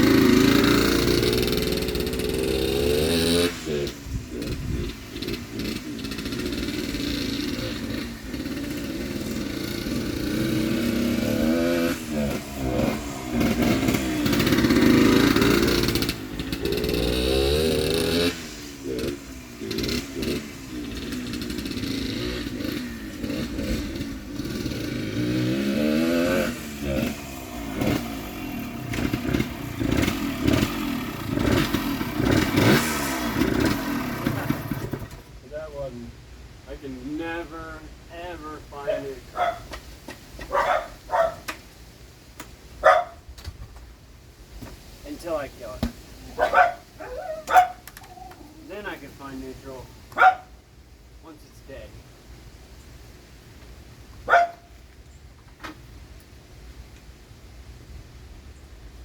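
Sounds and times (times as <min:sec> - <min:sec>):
two-stroke motorcycle engine revving: 0:00.0 - 0:35.4.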